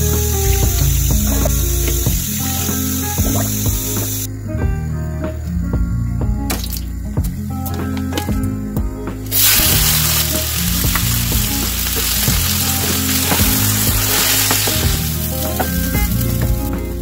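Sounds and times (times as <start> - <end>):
rice sizzling in oil: 9.3 - 16.4.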